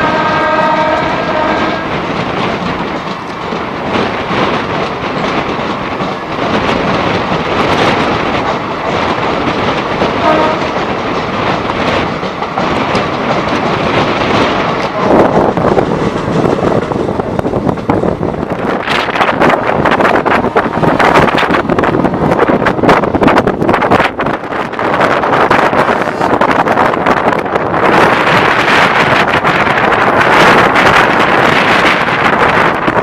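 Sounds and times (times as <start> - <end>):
train horn: 0.0 - 2.0, 10.2 - 10.8
train wheels clickety-clack: 0.0 - 33.0.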